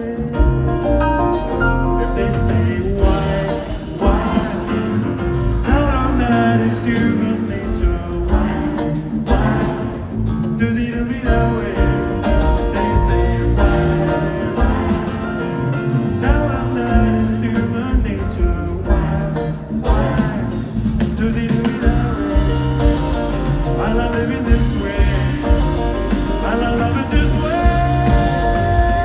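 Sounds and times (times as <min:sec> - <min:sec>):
live band playing with guitar: 0:00.0 - 0:29.0
wordless singing: 0:02.0 - 0:29.0.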